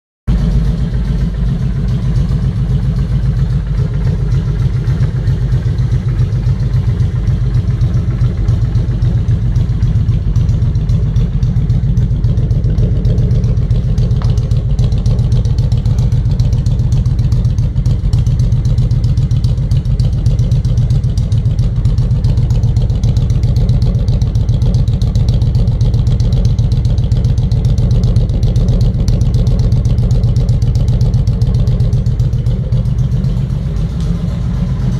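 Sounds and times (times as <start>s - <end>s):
motorcycle engine idling: 0.3s - 34.9s.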